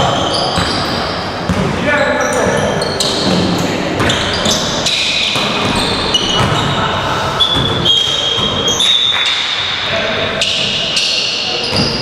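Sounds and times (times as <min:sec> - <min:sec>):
sneakers squeaking on gym floor: 0:00.0 - 0:09.8, 0:10.4 - 0:12.0
echoing hall noise: 0:00.0 - 0:12.0
basketball bouncing: 0:01.5 - 0:01.8, 0:03.2 - 0:06.8, 0:07.5 - 0:08.8.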